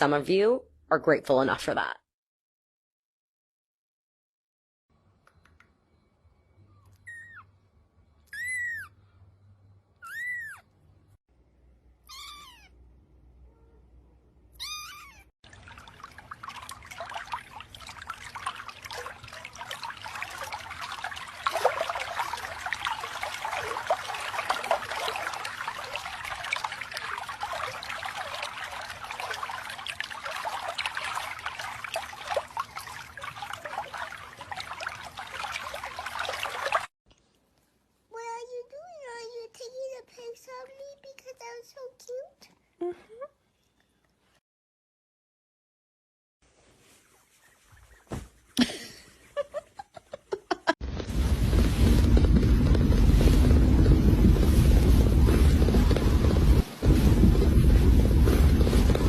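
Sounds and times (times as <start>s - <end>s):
cat meowing: 8.3s - 8.9s, 10.0s - 10.6s, 12.0s - 12.8s, 14.5s - 15.3s
water running and splashing: 15.4s - 36.9s, 51.0s - 59.0s.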